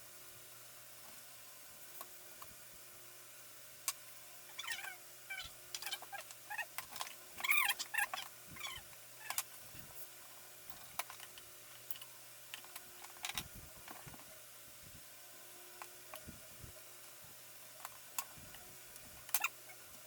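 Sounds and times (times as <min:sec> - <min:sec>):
high chirping squeaks: 0:04.5 - 0:06.7.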